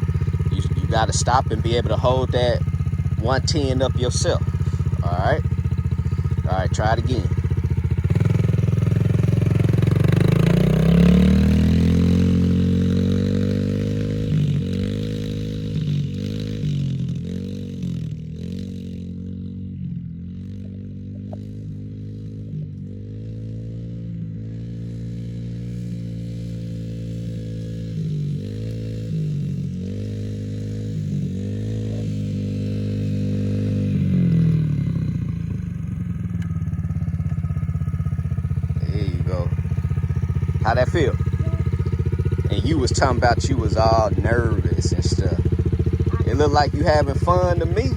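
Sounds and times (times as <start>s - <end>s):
motorbike engine pulling away: 0.0s - 47.9s.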